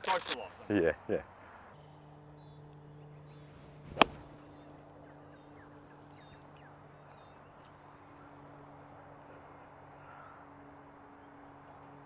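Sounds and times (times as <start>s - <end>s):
golf club striking ball: 4.0s - 4.4s.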